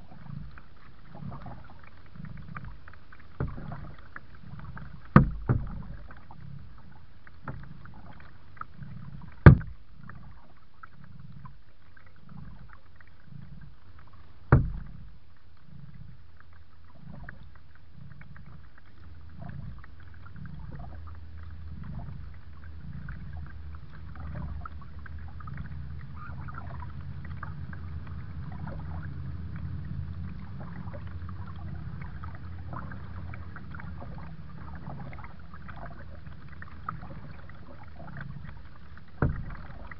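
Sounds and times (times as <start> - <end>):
water splashing and dripping: 0.0 - 39.9
low rumble: 12.2 - 39.9
sharp knocks: 14.5 - 14.9.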